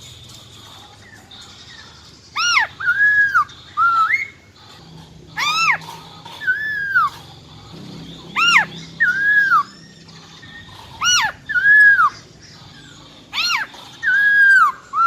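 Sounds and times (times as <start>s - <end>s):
laughingthrush whistling call: 2.3s - 4.4s, 8.3s - 12.2s.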